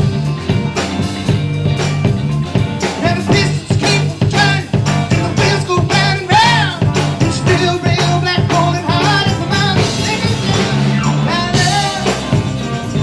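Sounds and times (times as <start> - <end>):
rock band playing: 0.0 - 13.0
person singing lead vocal: 3.0 - 13.0.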